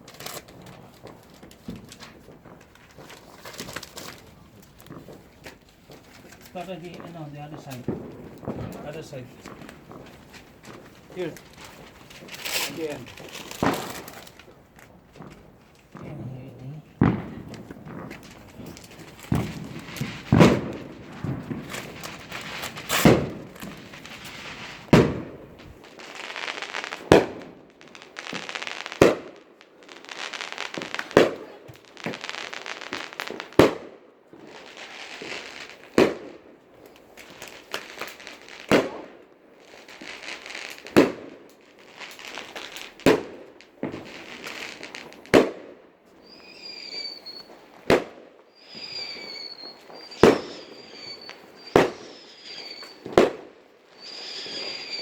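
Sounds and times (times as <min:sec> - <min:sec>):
firework crackling hiss: 0:00.0 - 0:45.6, 0:46.2 - 0:55.0
firework bangs: 0:00.0 - 0:55.0
firework high whistles: 0:46.2 - 0:47.6, 0:48.5 - 0:55.0.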